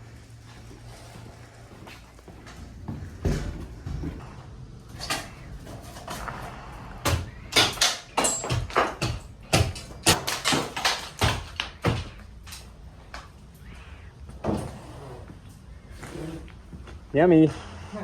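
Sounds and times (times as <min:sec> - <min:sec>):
demolition bangs and knocks: 0:02.7 - 0:13.8.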